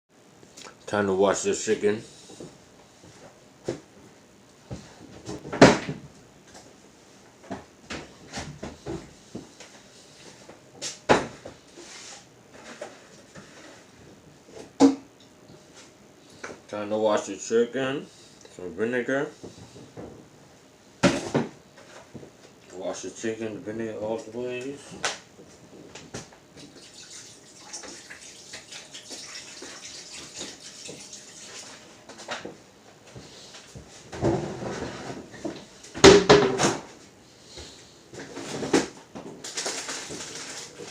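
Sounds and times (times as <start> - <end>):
water splashing and sloshing: 26.6 - 32.0
kitchen items knocking and clunking: 36.0 - 36.8.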